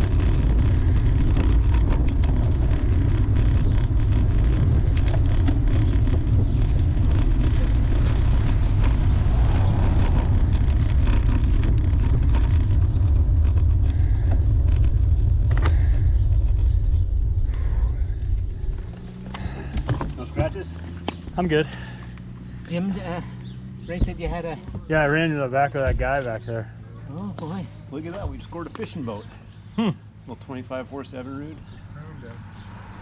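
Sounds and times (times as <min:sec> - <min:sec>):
wind buffeting microphone: 0:00.0 - 0:22.6
bicycle road noise: 0:00.0 - 0:33.0.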